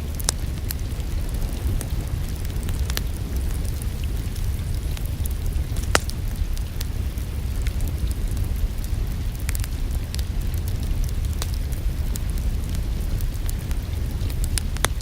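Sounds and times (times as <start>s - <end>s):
rain: 0.0s - 15.0s
sharp pops of fire: 0.0s - 15.0s
wood fire crackling: 0.0s - 15.0s.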